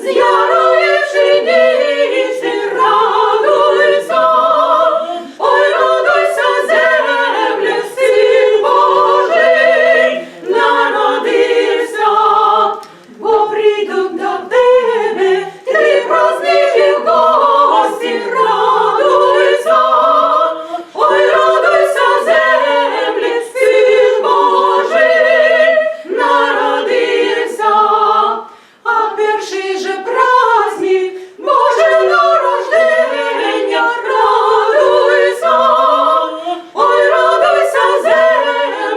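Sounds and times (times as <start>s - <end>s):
choir singing a cappella: 0.0s - 38.9s
singers breathing: 10.2s - 10.5s, 28.5s - 28.9s, 31.1s - 31.4s.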